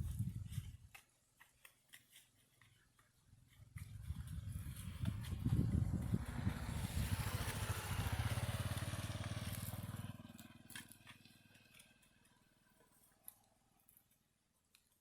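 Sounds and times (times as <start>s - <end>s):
small engine throbbing: 3.8s - 12.4s.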